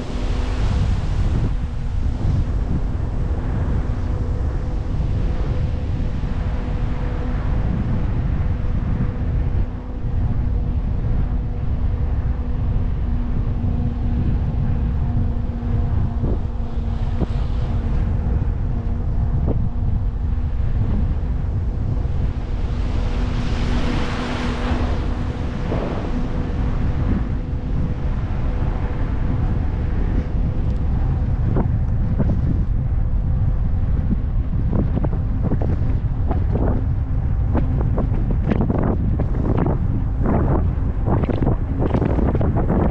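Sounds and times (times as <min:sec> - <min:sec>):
steady low hum: 0:00.0 - 0:42.9
wind buffeting microphone: 0:00.0 - 0:42.9
vehicle passing whoosh: 0:22.3 - 0:28.9.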